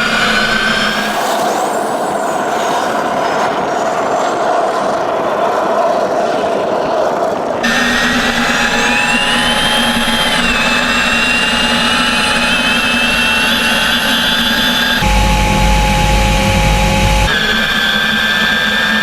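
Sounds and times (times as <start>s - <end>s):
turbine engine whine: 0.0s - 19.0s
deep heavy engine rumble: 7.7s - 17.8s.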